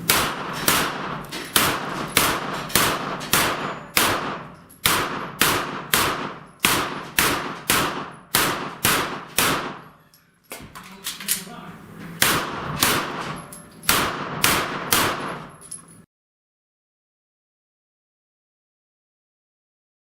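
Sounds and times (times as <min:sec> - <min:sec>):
gunshots hitting steel targets: 0:00.0 - 0:10.7, 0:12.1 - 0:16.0.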